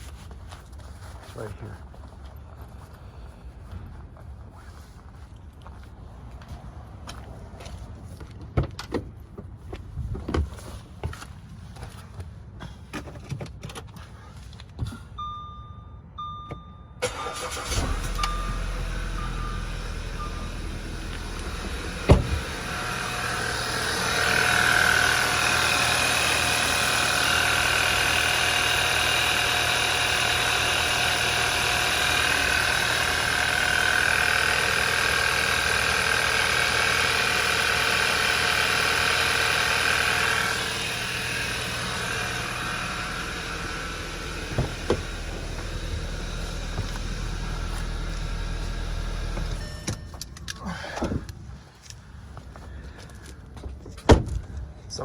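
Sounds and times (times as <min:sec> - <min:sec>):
car engine cranking and running: 0:17.0 - 0:54.7.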